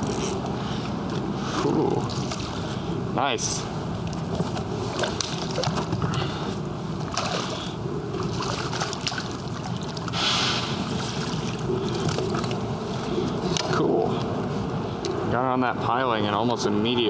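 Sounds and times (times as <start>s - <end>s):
water sloshing and lapping: 0.0s - 14.4s
water splashing: 1.8s - 3.0s, 4.1s - 13.6s.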